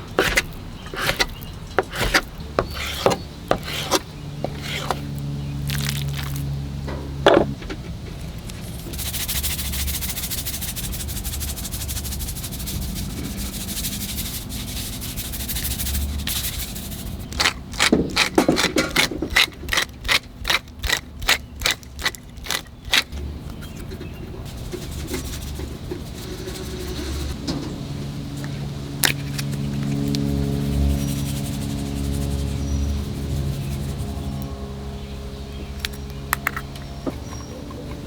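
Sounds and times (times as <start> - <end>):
sharp regular strokes: 0.0 - 6.3.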